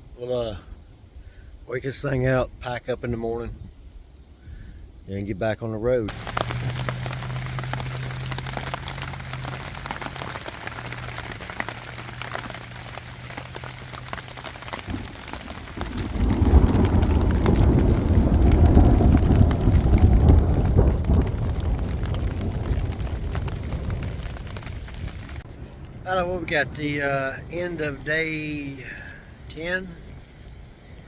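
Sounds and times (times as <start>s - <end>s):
thunder rumbling: 6.1s - 25.5s
rain falling: 6.1s - 29.4s.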